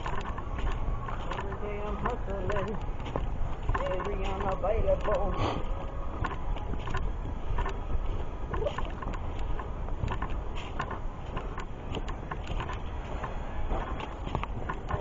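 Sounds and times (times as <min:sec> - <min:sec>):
footsteps on dirt trail: 0:00.0 - 0:15.0
wind rumble: 0:00.0 - 0:15.0.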